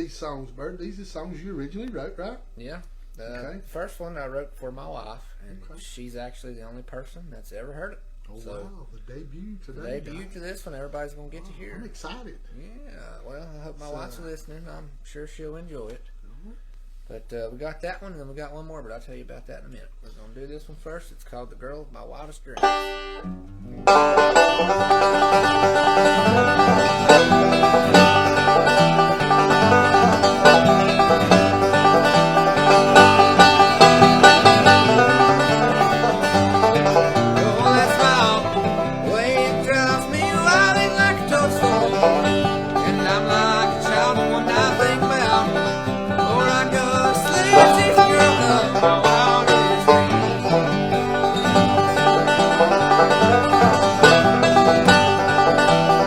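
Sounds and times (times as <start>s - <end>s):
bluegrass banjo and guitar: 22.6s - 56.0s.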